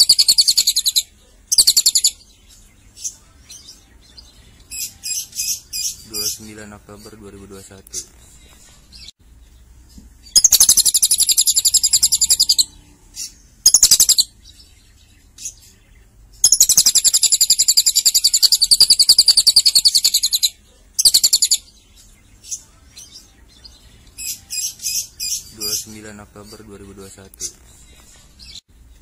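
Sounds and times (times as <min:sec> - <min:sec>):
lovebird chattering trills: 0:00.0 - 0:02.2, 0:10.3 - 0:14.3, 0:16.4 - 0:21.7.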